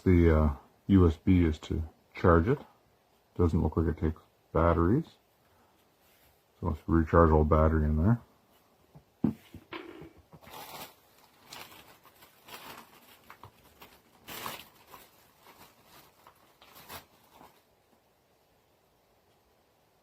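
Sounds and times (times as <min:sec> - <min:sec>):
packaging rustling and tearing: 0:10.3 - 0:17.7.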